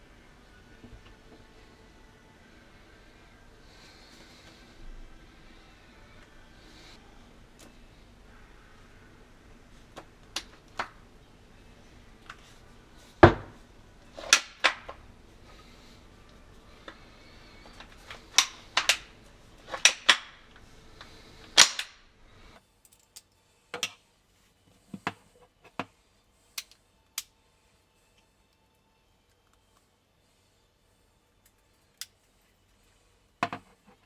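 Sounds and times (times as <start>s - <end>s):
metallic clicks of gun handling: 22.8s - 24.0s, 26.5s - 27.4s, 31.4s - 32.4s.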